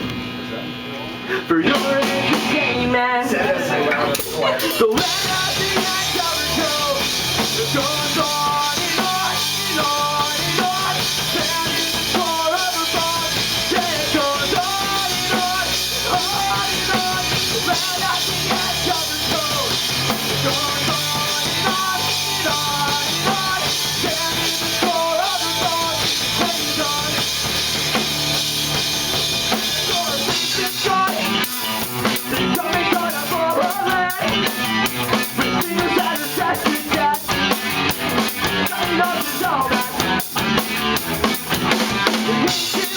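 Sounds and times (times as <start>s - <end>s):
live rock band playing: 1.5s - 42.9s
hard rapid drum hits: 4.2s - 42.9s.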